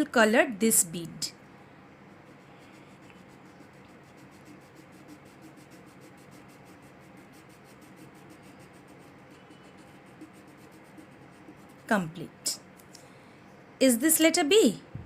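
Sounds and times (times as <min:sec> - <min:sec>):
crayon scratching on paper: 0:02.1 - 0:12.3.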